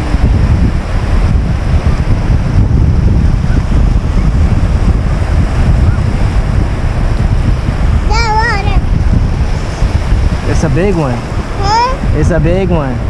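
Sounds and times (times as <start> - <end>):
surf on the beach: 0.0 - 13.0
wind buffeting microphone: 0.0 - 13.0.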